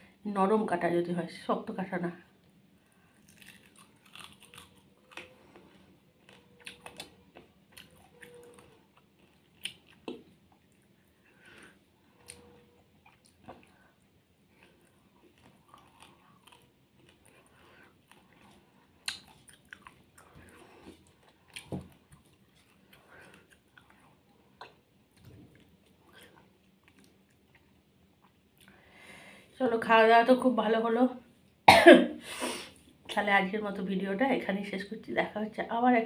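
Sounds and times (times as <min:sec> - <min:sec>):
person chewing and biting: 0:02.8 - 0:28.7.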